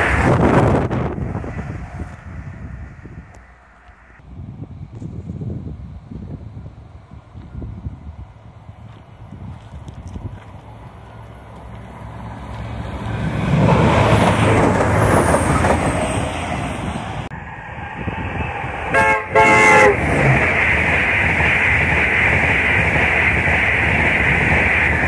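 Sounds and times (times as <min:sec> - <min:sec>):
train rumbling past: 0:00.0 - 0:25.0
train horn blasts: 0:18.9 - 0:20.2.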